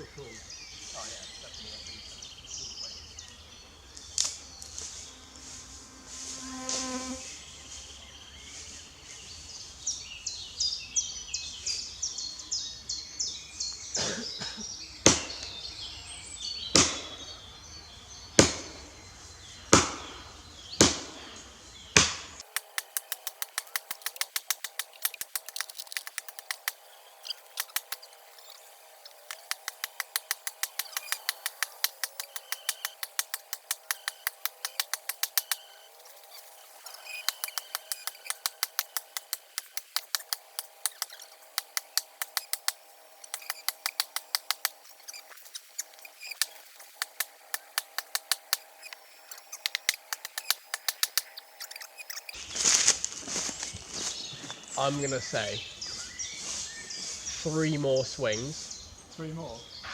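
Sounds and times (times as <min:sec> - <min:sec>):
birds chirping: 0:00.0 - 0:59.9
hand tool chopping wood: 0:22.0 - 0:52.4
quick even clicking: 0:22.4 - 0:52.4.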